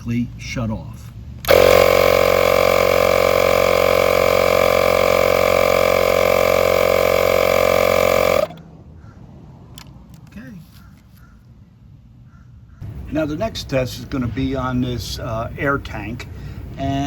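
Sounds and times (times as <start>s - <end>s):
inflator compressor buzzing: 1.4s - 8.6s.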